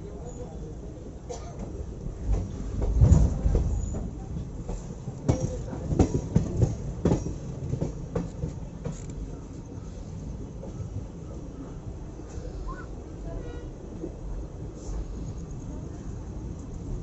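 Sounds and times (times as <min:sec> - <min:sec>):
train wheels knocking over rail joints: 0:02.3 - 0:09.1.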